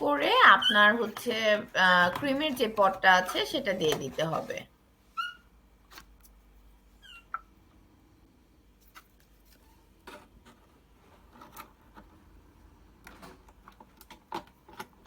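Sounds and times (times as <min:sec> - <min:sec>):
brief squeak: 0:05.2 - 0:05.5.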